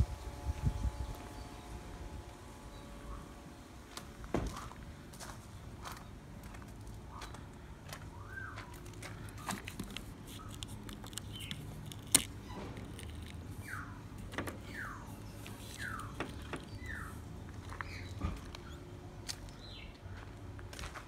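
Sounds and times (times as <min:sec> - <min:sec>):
low steady hum: 0:00.0 - 0:21.0
bird whistling: 0:13.6 - 0:14.0, 0:14.7 - 0:15.1, 0:15.7 - 0:16.2.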